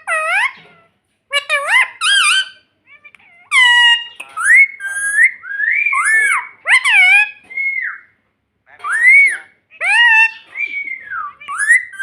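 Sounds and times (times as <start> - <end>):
parakeet shrill whistled calls: 3.5 - 8.2, 8.8 - 12.0.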